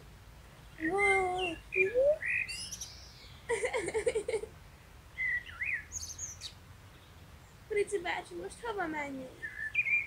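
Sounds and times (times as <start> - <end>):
songbirds chirping and whistling: 0.6 - 3.6, 5.1 - 7.7, 9.3 - 10.0.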